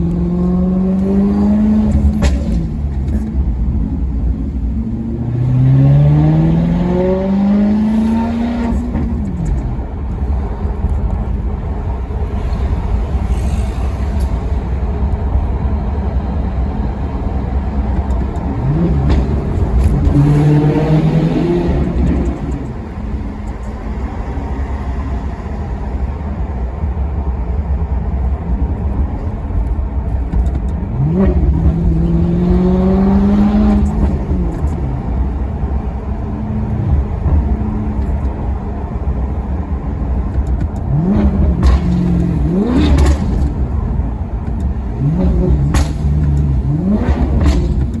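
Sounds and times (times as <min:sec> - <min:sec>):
exhaust cracks: 0:00.0 - 0:05.0, 0:17.3 - 0:24.0, 0:37.0 - 0:48.0
car engine revving: 0:00.0 - 0:15.2, 0:17.4 - 0:23.7, 0:30.0 - 0:39.4, 0:40.0 - 0:48.0.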